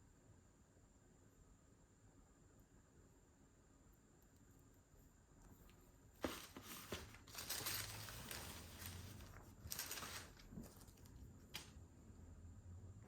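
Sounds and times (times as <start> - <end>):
paper packaging rustling: 6.2 - 11.7.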